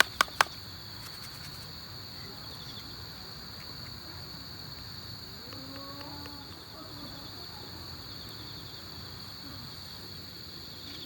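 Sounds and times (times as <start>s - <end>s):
faint ticks: 0.0s - 1.7s, 4.7s - 6.6s
insects chirring: 0.0s - 11.0s.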